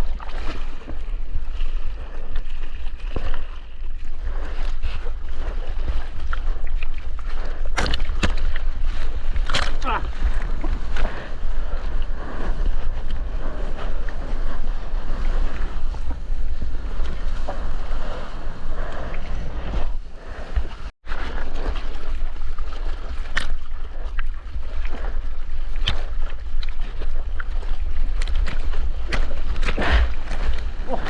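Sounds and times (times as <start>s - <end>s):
wind buffeting microphone: 0.0s - 23.1s
ocean water splashing: 0.0s - 31.0s.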